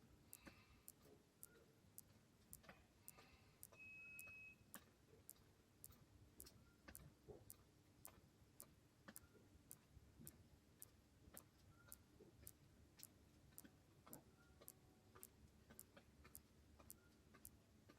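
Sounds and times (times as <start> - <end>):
faint even ticking: 0.0 - 17.6
short high beep: 3.8 - 4.6.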